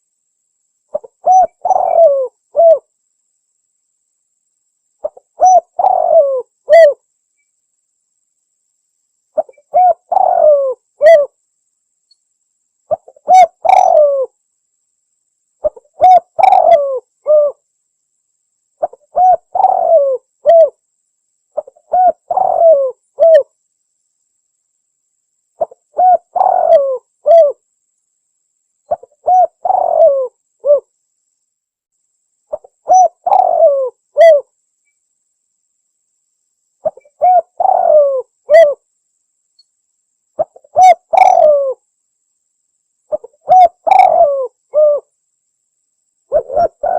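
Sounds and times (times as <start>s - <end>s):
dove cooing: 0.9s - 2.9s, 5.0s - 7.0s, 9.4s - 11.4s, 12.9s - 14.3s, 15.6s - 17.6s, 18.8s - 20.8s, 21.6s - 23.5s, 25.6s - 27.6s, 28.9s - 30.9s, 32.5s - 34.5s, 36.8s - 38.8s, 40.4s - 41.8s, 43.1s - 45.1s, 46.3s - 46.9s.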